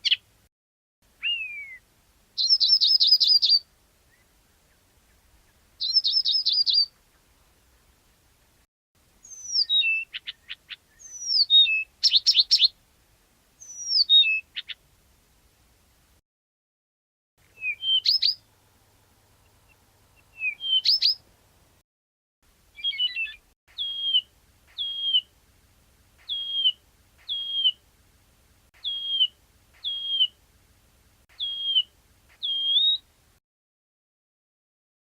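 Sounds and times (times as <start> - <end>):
bird down-slurred whistles: 1.2 - 1.8, 5.8 - 6.9, 9.2 - 12.7, 13.6 - 14.4, 17.6 - 18.4, 20.3 - 21.2, 22.8 - 25.3, 26.3 - 27.8, 28.8 - 30.4, 31.4 - 33.0
bird song rising notes: 9.2 - 12.6, 17.5 - 18.5, 19.4 - 21.2, 22.8 - 25.3, 26.2 - 27.8, 28.8 - 30.4, 31.3 - 33.0.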